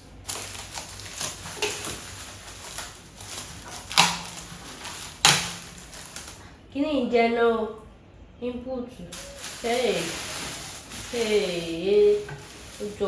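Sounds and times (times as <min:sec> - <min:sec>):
knocks and rustles: 0:00.3 - 0:06.4, 0:09.2 - 0:13.0.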